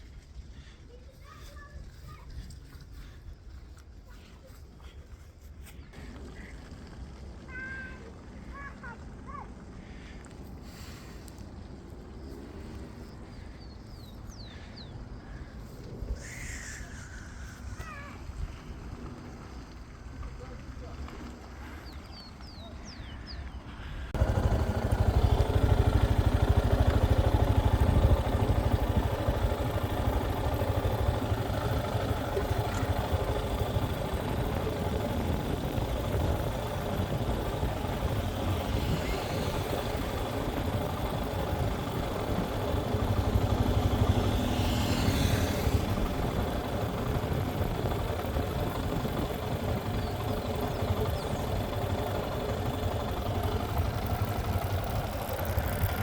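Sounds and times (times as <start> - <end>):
vehicle engine rumbling: 5.8 - 56.0.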